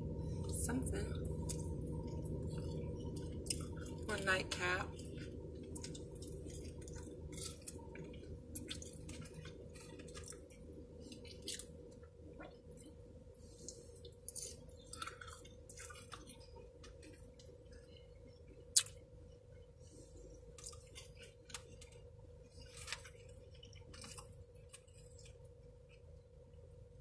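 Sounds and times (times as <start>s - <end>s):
steady low hum: 0.0s - 27.0s
person chewing: 1.2s - 4.1s, 4.9s - 19.0s, 19.9s - 26.1s
mouth clicks and smacks: 18.7s - 19.0s.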